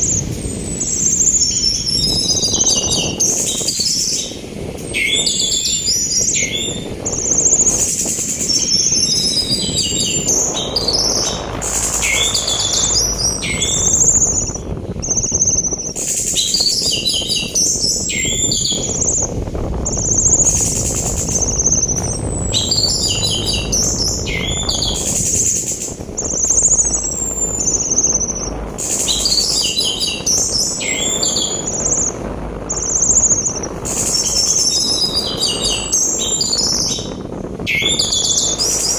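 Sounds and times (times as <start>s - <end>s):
sea wind rushing: 0.0s - 38.9s
thrush singing: 16.2s - 38.9s.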